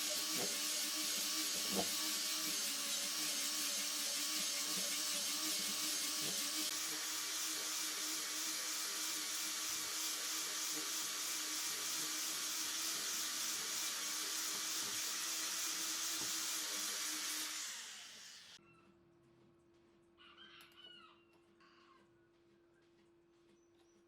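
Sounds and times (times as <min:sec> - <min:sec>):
power tool running: 0:00.0 - 0:18.6.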